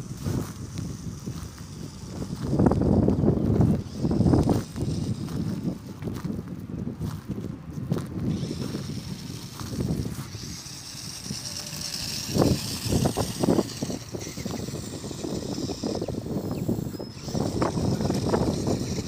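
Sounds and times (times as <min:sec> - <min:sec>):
electric motor whining: 0:00.0 - 0:06.5, 0:07.9 - 0:19.0
toy truck wheels rumbling and clattering: 0:00.0 - 0:19.0.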